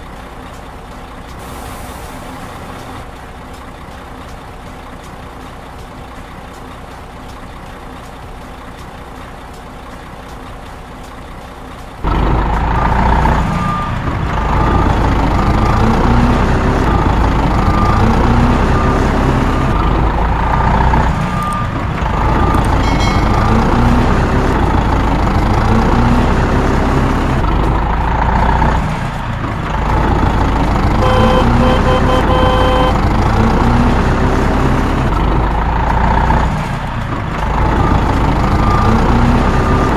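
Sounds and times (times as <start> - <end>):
heavy truck engine revving: 0.0 - 39.9
short beeps: 31.0 - 33.0.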